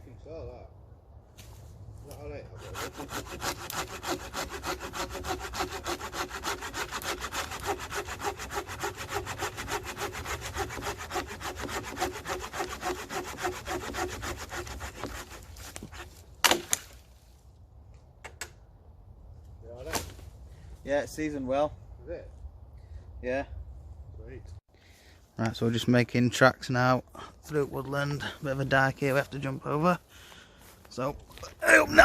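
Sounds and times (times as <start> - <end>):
hand saw cutting log: 2.2 - 16.8
loud wood crack: 15.1 - 17.1.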